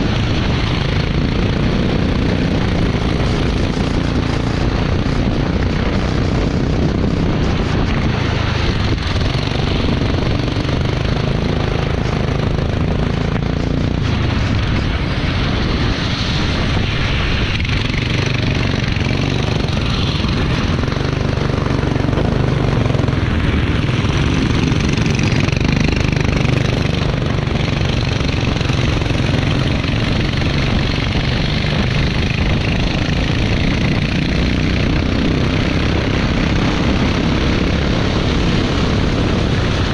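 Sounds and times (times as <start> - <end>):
kart engine running: 0.0 - 39.9
rushing noise from wet track: 0.0 - 39.9.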